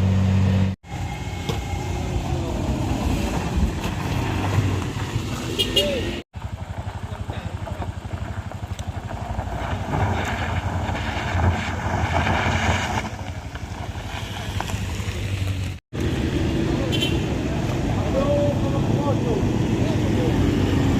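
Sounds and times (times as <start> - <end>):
truck diesel engine throbbing: 0.0 - 14.6.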